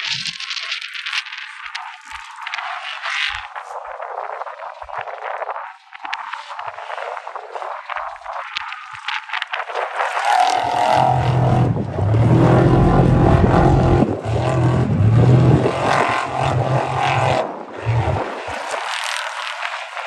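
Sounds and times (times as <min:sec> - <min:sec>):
race vehicle engine running hard: 0:10.2 - 0:20.0.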